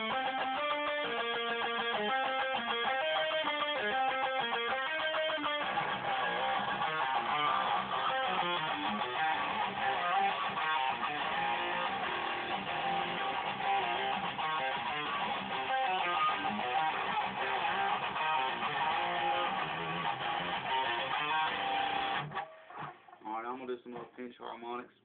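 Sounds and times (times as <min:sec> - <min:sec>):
electric guitar playing: 0:00.0 - 0:23.2.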